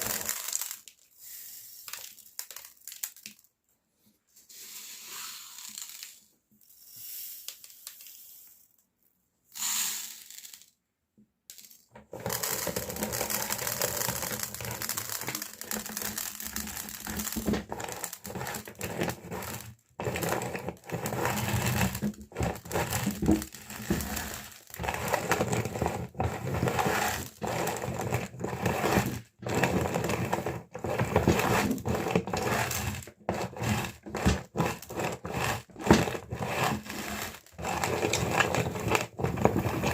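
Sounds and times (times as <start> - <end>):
meat grinder crunching candies: 0.0 - 3.2, 12.0 - 39.9.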